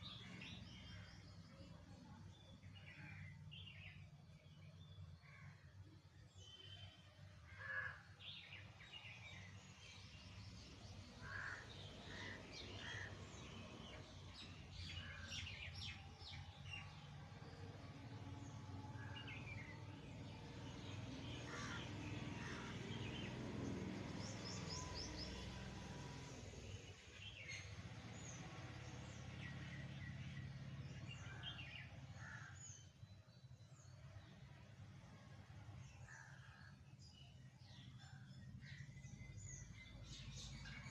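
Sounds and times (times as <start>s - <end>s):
birds chirping: 0.0s - 1.6s, 7.6s - 34.9s.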